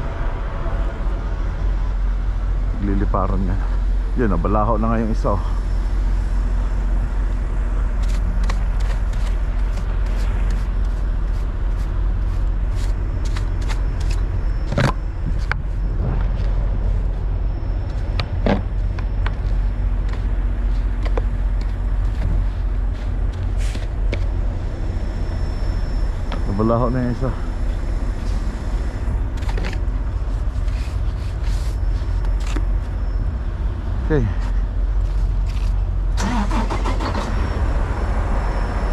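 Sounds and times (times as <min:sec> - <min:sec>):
diesel truck engine idling: 0:00.0 - 0:38.9.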